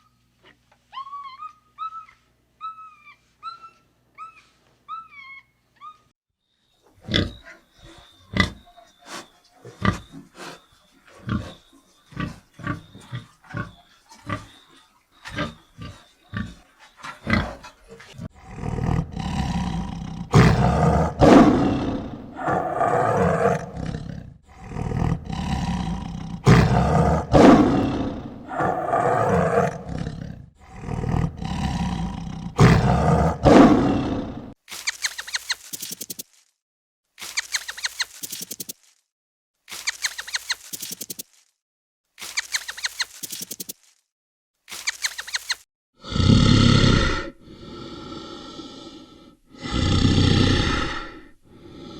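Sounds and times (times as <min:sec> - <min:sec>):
big cat grunting: 0:15.3 - 0:34.6, 0:46.0 - 0:51.9
big cat roaring: 0:18.1 - 0:34.6, 0:46.0 - 0:51.9.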